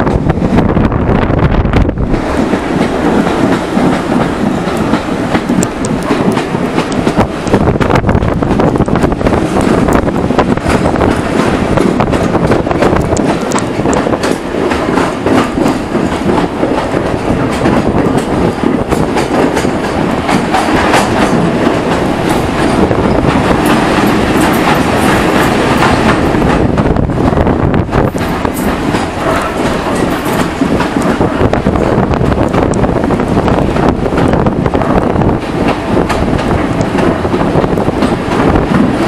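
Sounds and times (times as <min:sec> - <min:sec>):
train wheel rushing noise: 0:00.0 - 0:39.0.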